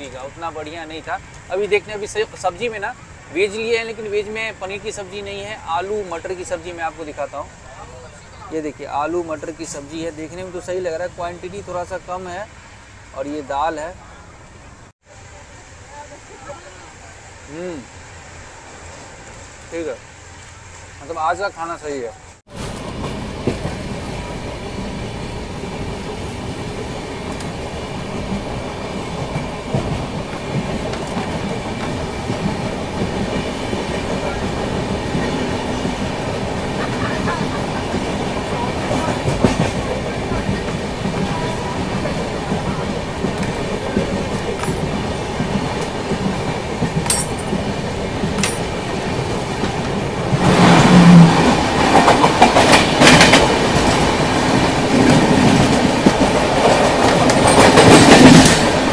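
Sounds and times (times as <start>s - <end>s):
passing train rush: 0.0s - 58.9s
train rumble: 0.0s - 58.9s
wheels clicking over rail joints: 27.0s - 50.6s, 51.4s - 58.9s.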